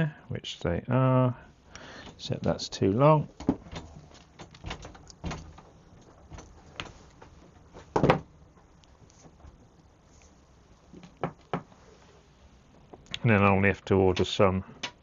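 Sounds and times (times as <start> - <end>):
handling clicks and knocks: 3.3 - 9.6.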